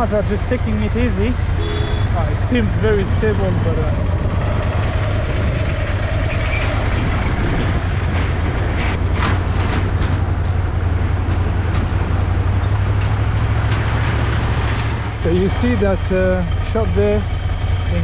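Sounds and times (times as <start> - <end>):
motorcycle engine at low speed: 0.0 - 18.0
wind noise: 1.6 - 15.2
knocks and clatters from bridge deck: 7.2 - 15.2.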